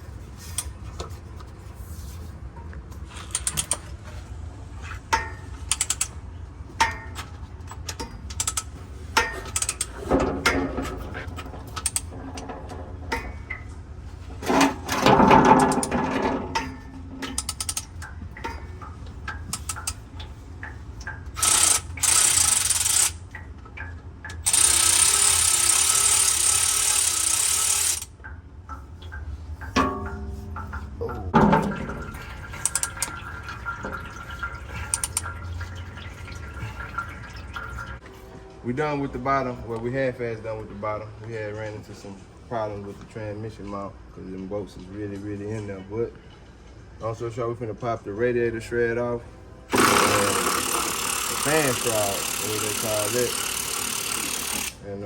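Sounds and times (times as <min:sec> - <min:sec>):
hand ratchet clicking: 0:03.3 - 0:03.8, 0:05.7 - 0:06.1, 0:08.3 - 0:10.0, 0:17.3 - 0:18.1, 0:19.5 - 0:20.0, 0:21.4 - 0:23.2, 0:24.4 - 0:28.1, 0:34.9 - 0:35.2, 0:49.7 - 0:54.8
metal clattering: 0:29.6 - 0:34.4.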